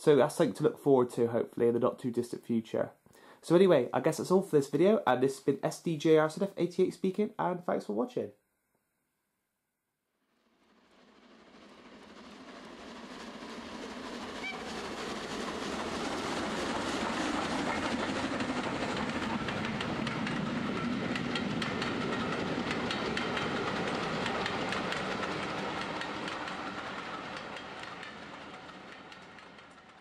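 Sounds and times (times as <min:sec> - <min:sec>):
train rumble: 0:10.7 - 0:30.0
wheels clacking over rail joints: 0:14.3 - 0:30.0.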